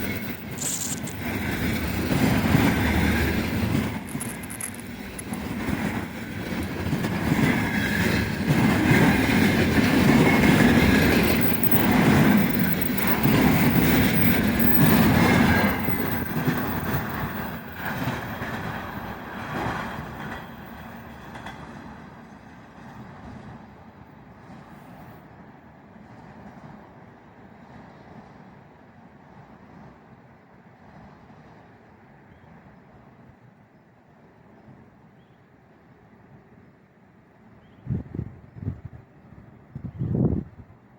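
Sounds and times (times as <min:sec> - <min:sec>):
train wheels clacking over rail joints: 0:00.0 - 0:22.0.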